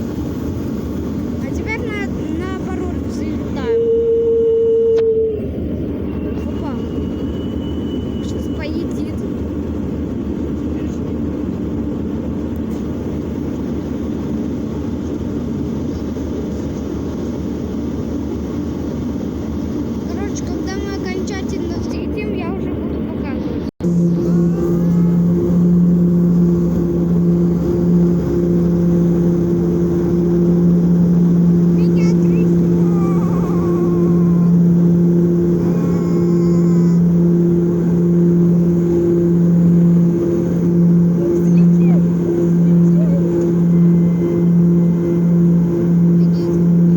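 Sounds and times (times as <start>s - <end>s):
airliner cabin engine drone: 0.0s - 46.9s.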